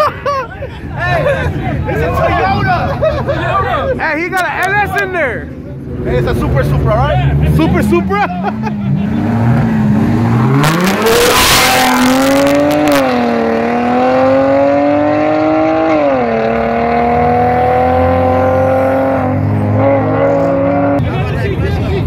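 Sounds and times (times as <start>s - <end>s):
car engines revving hard: 5.5s - 21.4s.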